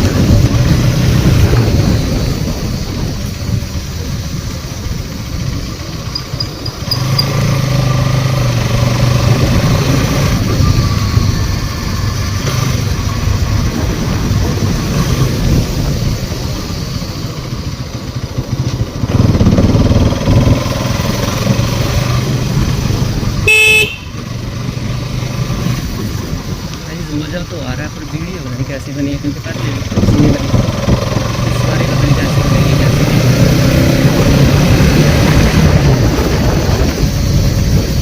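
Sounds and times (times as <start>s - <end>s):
motorcycle engine running: 0.0s - 38.0s
wind rushing over microphone: 0.0s - 38.0s
vehicle horn beep: 23.4s - 24.2s.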